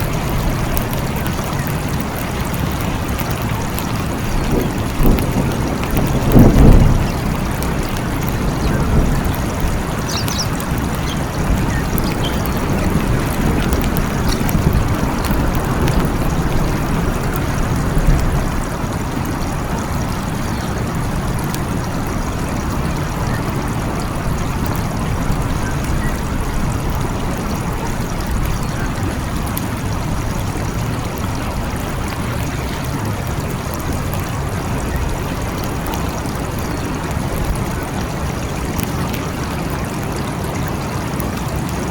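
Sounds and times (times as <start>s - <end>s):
steady rain: 0.0s - 41.9s
rolling thunder: 3.5s - 22.3s.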